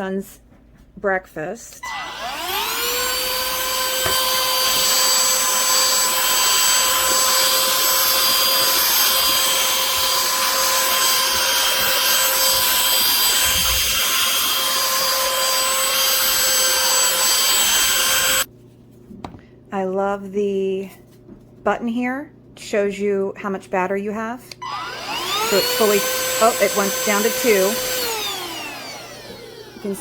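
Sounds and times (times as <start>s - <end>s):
handheld vacuum running: 1.8s - 18.5s, 24.6s - 30.0s.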